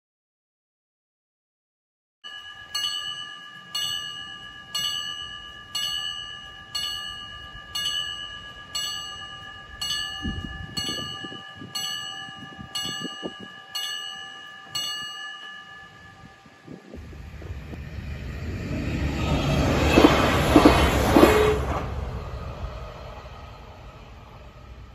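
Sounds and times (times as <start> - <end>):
level crossing warning bell: 2.2 - 17.3.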